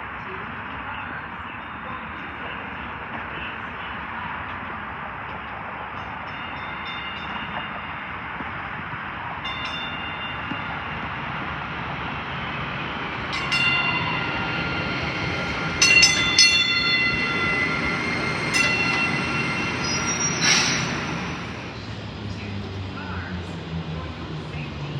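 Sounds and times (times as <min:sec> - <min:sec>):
passenger train rumbling past: 0:00.0 - 0:24.9
train wheel squeal: 0:13.1 - 0:21.9.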